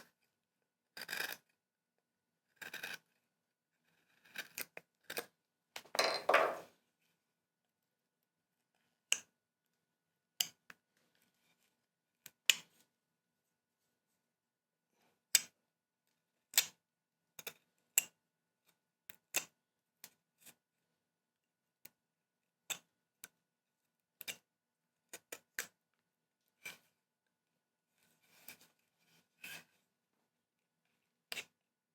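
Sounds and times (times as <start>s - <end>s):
carving tool scraping wood: 1.0s - 1.4s, 2.5s - 3.1s, 3.8s - 5.2s
carving tool taps and clicks: 9.1s - 9.3s, 10.4s - 10.8s, 12.2s - 12.7s, 15.3s - 15.6s, 16.5s - 16.8s, 17.4s - 18.2s, 19.1s - 20.6s, 22.7s - 23.4s, 24.2s - 24.5s.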